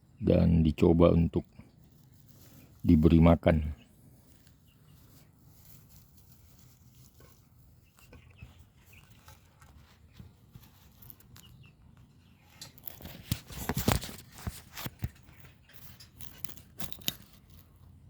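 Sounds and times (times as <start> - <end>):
nestling birds cheeping: 1.2 - 12.8.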